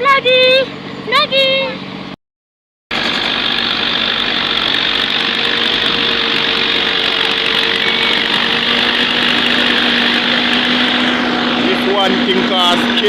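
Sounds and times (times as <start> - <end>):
vehicle engine running: 2.9 - 13.0.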